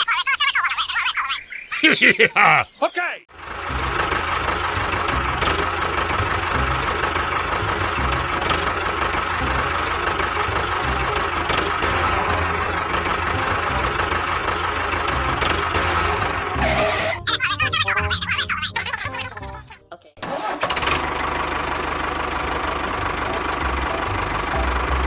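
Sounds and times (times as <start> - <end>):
small motor whining and chugging: 3.4 - 16.9.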